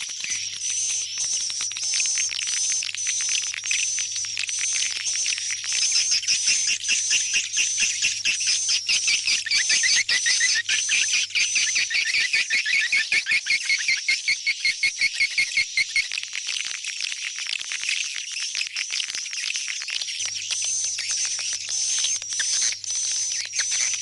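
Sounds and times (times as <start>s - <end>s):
swiftlets twittering: 0.0s - 16.1s.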